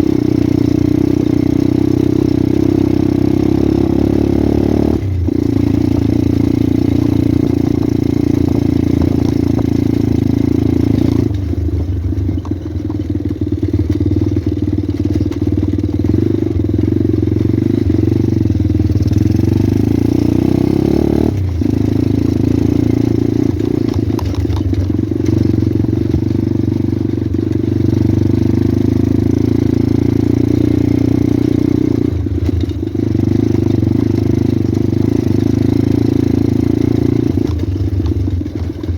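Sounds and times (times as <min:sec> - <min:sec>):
small motorcycle engine running: 0:00.0 - 0:38.9.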